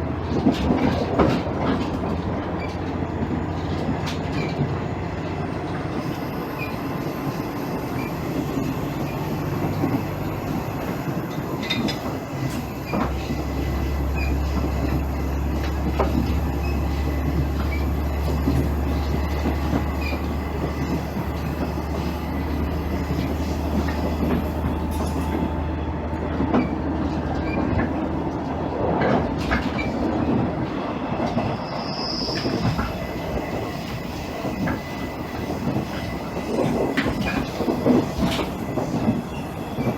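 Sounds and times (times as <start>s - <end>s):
diesel engine droning: 0.0s - 31.5s
short high squeal: 31.4s - 36.4s.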